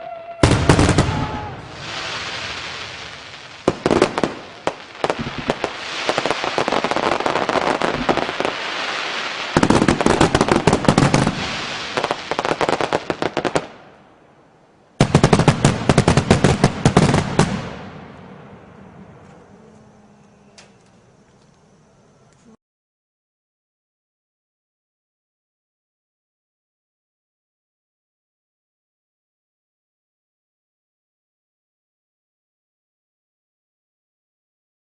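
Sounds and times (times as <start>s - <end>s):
fireworks crackling bangs: 0.4s - 14.0s, 15.0s - 19.5s.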